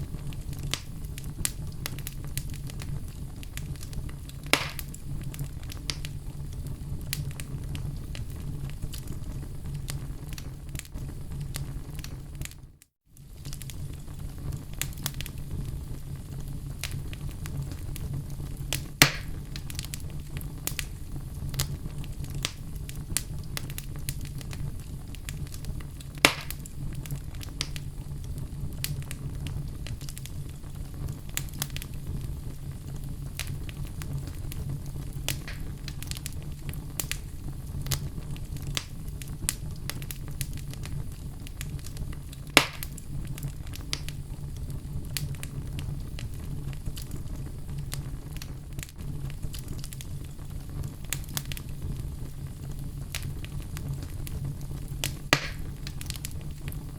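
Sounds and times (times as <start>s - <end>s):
burning logs crackling: 0.0s - 56.9s
low rumble of flame: 0.0s - 56.9s
loud wood pops: 4.5s - 5.0s, 19.0s - 19.3s, 26.2s - 26.6s, 35.3s - 35.7s, 42.6s - 43.0s, 55.3s - 55.7s.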